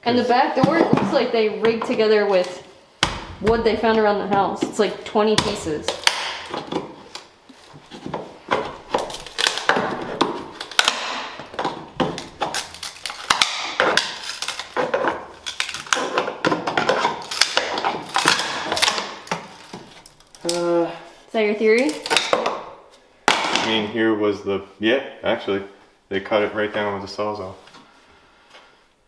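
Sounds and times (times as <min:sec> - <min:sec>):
hand tools knocking and scraping: 0:00.1 - 0:12.7.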